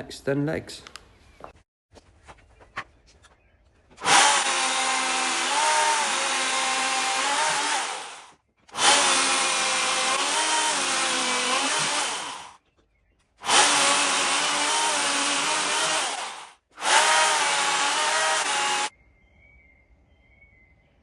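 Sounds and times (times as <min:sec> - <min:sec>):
power tool cutting wood: 0:04.0 - 0:12.6, 0:13.4 - 0:18.9.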